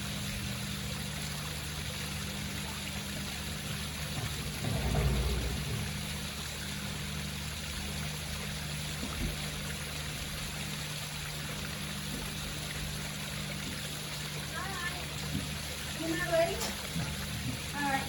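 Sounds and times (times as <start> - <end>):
water trickling down rocks: 0.1 - 18.0
low hum: 3.5 - 7.6.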